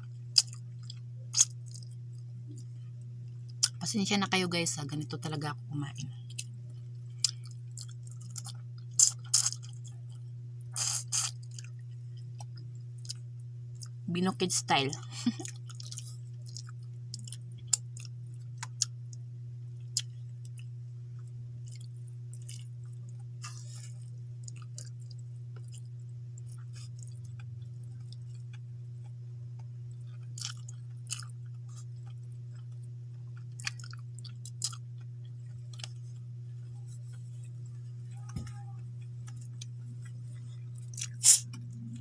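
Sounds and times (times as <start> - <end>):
steady low hum: 0.0 - 42.0
person chewing food: 0.3 - 2.7, 6.2 - 14.0, 15.2 - 19.2, 19.8 - 42.0.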